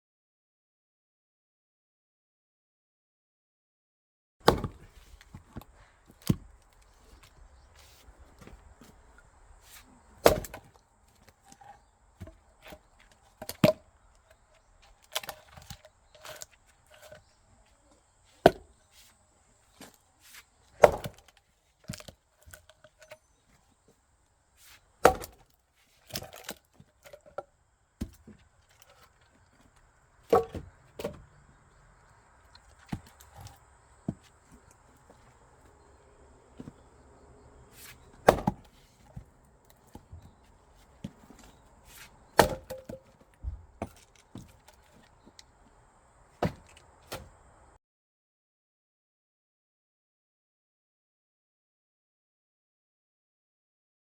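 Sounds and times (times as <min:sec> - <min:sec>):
axe strikes splitting logs: 0:04.4 - 0:23.4, 0:24.6 - 0:31.8, 0:32.5 - 0:35.8, 0:36.5 - 0:37.0, 0:37.6 - 0:45.5, 0:46.3 - 0:47.5.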